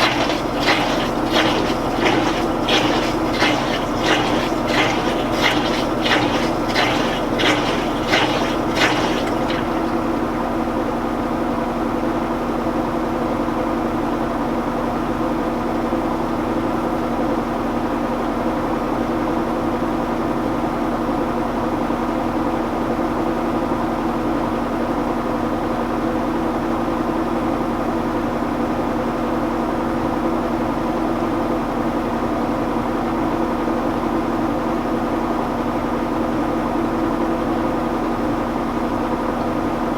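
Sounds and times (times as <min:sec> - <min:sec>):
rhythmic watery hiss: 0:00.0 - 0:10.0
washing machine spin hum: 0:00.0 - 0:10.6.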